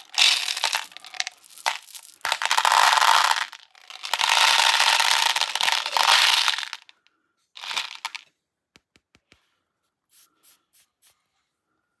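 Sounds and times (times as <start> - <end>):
slime and hard candy crunching: 0.0 - 6.9, 7.6 - 8.2.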